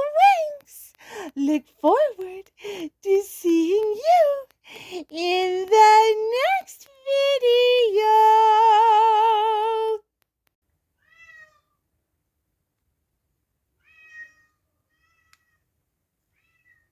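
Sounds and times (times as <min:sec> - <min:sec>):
cat meowing faintly: 0:11.0 - 0:11.8, 0:13.8 - 0:15.6.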